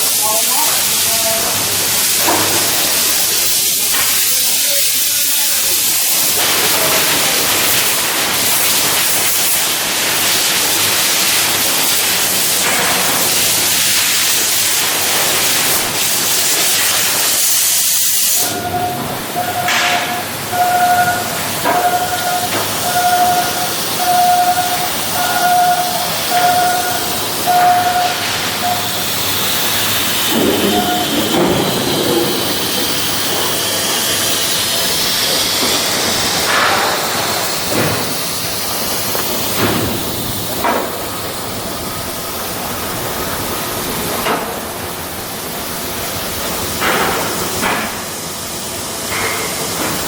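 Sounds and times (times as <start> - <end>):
loud steady hiss: 0.0 - 50.0
electronic beeping tone: 18.4 - 29.0.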